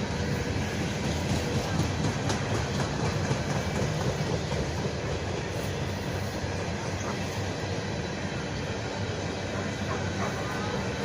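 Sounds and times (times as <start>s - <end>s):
engine rattle: 0.0s - 7.5s
tractor diesel engine running: 0.0s - 11.0s.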